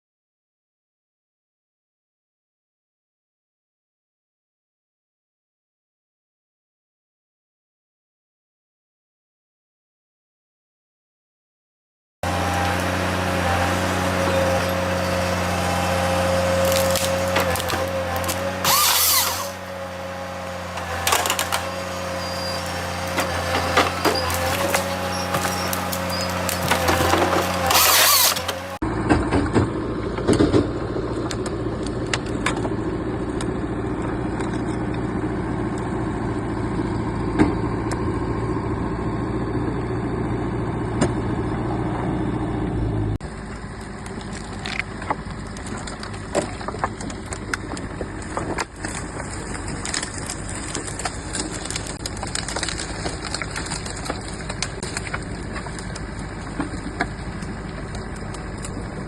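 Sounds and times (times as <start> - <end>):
heavy machine engine running: 12.2 - 59.0.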